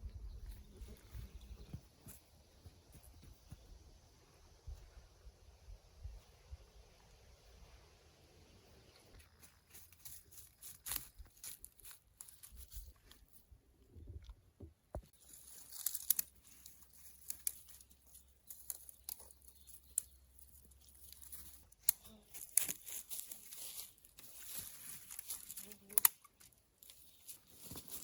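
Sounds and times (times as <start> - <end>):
twigs rustling and snapping: 9.3 - 13.4, 15.0 - 28.0.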